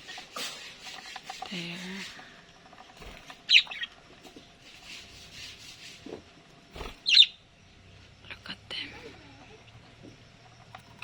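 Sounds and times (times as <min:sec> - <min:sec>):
budgerigar chirps: 0:07.1 - 0:07.4.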